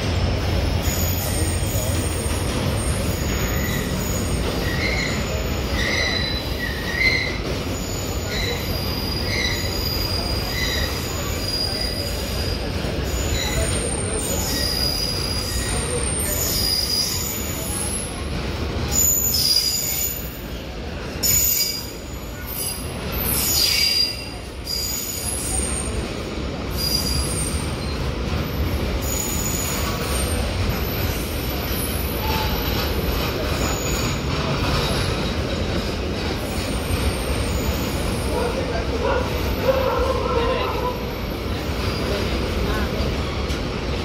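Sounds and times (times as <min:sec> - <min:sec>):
high-pitched wheel squeals: 0:00.8 - 0:18.1, 0:18.9 - 0:20.4, 0:21.2 - 0:26.0.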